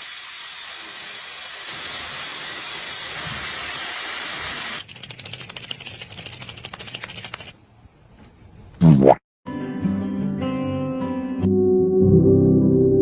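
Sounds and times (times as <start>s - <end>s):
fast irregular crackle of clicks: 4.9s - 7.6s.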